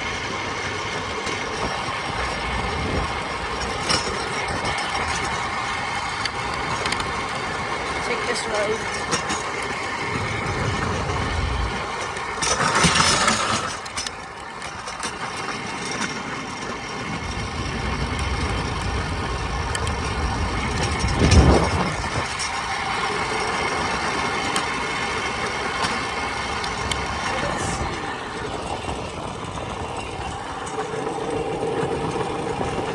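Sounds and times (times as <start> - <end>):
trike riding on road: 0.0 - 32.9
wind buffeting microphone: 0.0 - 32.9.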